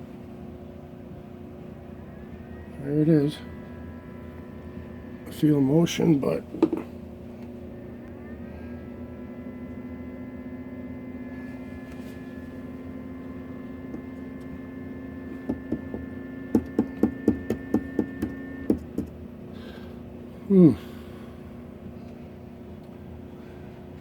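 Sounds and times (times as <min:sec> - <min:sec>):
ice maker humming: 0:00.0 - 0:21.9
high-pitched whine: 0:01.3 - 0:18.8.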